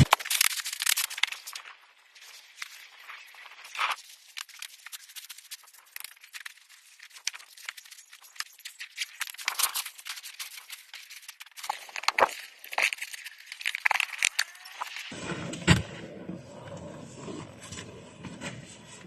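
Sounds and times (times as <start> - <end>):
camping gear rustling and rattling: 0.0 - 15.2.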